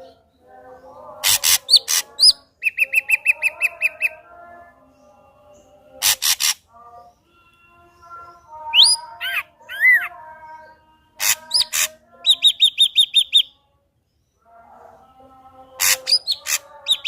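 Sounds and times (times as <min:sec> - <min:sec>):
bird singing varied phrase: 0:01.3 - 0:04.2, 0:05.6 - 0:13.6.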